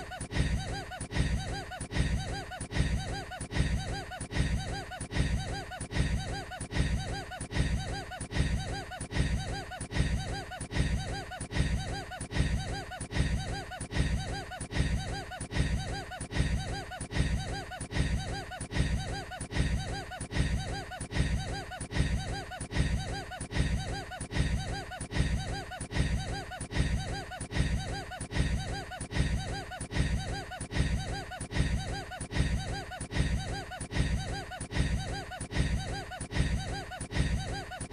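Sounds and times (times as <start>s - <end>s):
man laughing in a loop: 0.0s - 37.9s.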